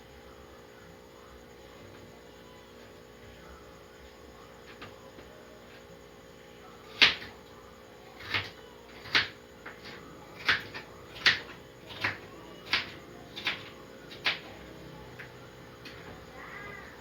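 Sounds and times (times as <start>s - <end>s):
knife cutting potato on board: 8.2s - 14.5s.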